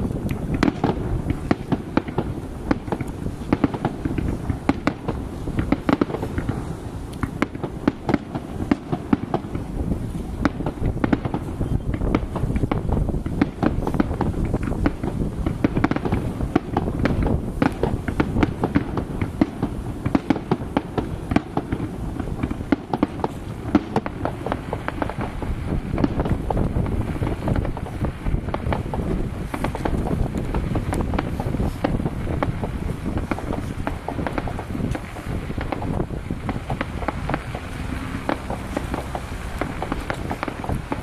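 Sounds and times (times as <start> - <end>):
fireworks bangs and crackles: 0.0 - 41.0
low rumbling background: 25.4 - 41.0.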